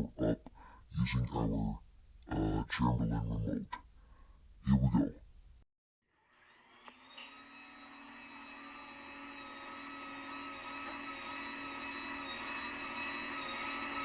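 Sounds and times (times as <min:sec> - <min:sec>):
garage door motor whine: 0:06.3 - 0:14.0.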